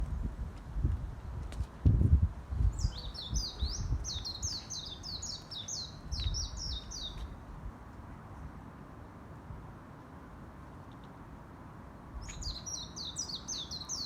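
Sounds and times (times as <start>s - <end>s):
songbird singing: 2.5s - 8.5s, 11.9s - 14.0s.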